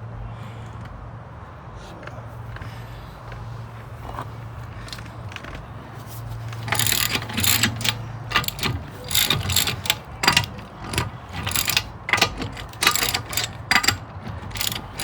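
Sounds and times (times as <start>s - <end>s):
ratchet wrench clicking: 6.5s - 15.0s.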